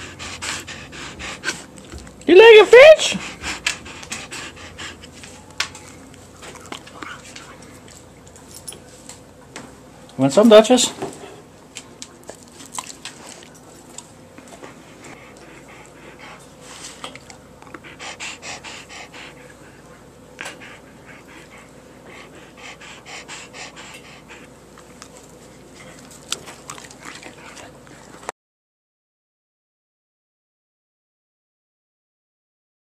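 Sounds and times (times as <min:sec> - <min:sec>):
dog panting: 0:00.0 - 0:05.4, 0:06.4 - 0:08.1, 0:14.4 - 0:28.1.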